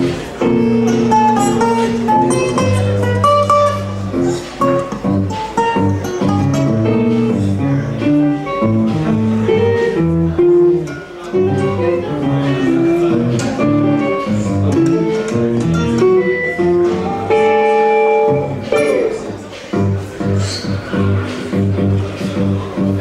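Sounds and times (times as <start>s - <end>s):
bass line: 0.0s - 17.6s
plucked guitar notes: 0.0s - 23.0s.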